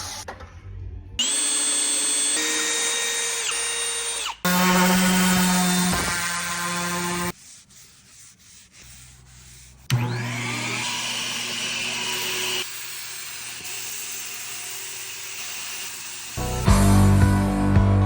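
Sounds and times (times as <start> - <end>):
power sander humming: 1.2 - 7.3, 9.9 - 17.1
faint rubbing on wood: 7.3 - 9.9.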